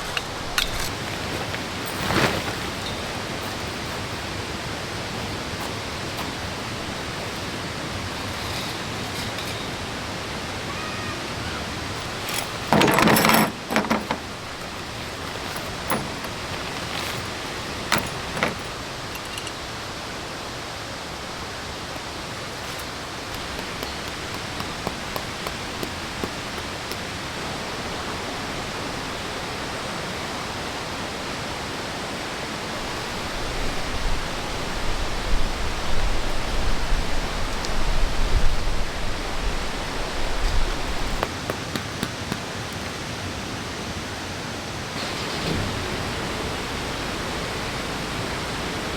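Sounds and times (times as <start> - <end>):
waterfall and stream rushing: 0.0 - 48.9
loud clatter: 12.0 - 19.5.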